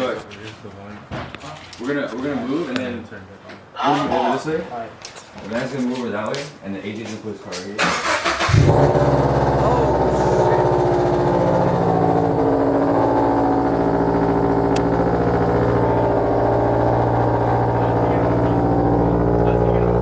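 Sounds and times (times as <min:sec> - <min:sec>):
car engine idling: 0:08.0 - 0:20.0.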